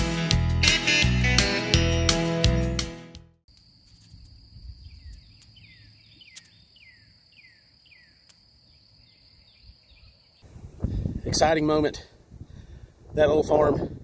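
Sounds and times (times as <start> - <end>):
insects droning: 3.5 - 10.5
bird whistling: 4.8 - 8.2.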